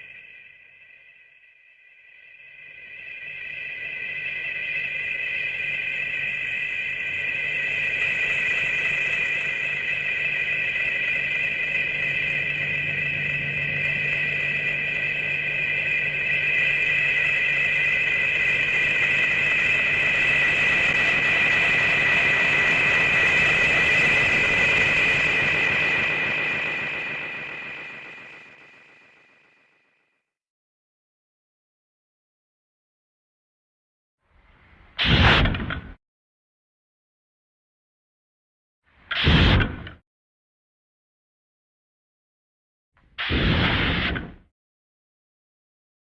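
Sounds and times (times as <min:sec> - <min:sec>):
high two-tone whine: 0:00.0 - 0:29.8.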